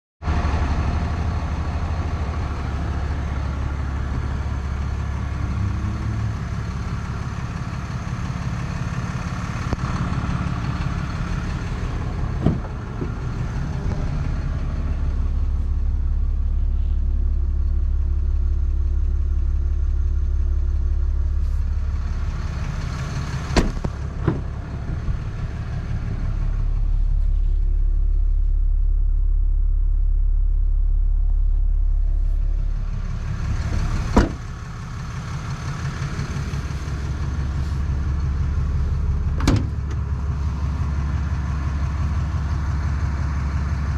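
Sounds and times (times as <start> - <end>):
truck engine idling: 0.2 - 43.9.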